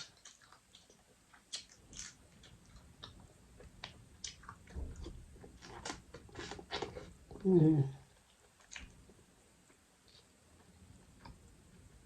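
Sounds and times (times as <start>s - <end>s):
chewing crab meat: 0.0s - 7.4s.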